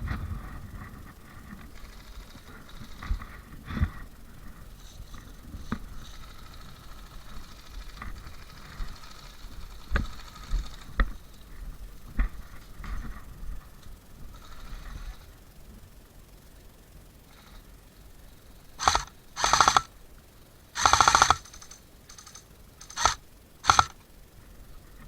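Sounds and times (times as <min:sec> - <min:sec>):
low rumbling: 0:00.0 - 0:15.2
faint high buzz: 0:00.0 - 0:25.0
sharp clicks and knocks: 0:07.4 - 0:11.3, 0:20.8 - 0:24.0.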